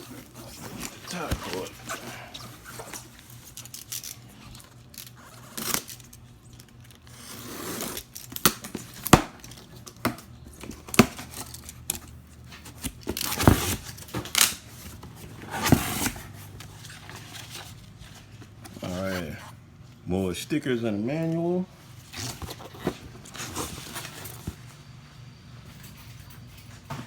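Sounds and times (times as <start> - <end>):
cardboard tearing and crinkling: 0.0 - 19.4, 22.0 - 24.7.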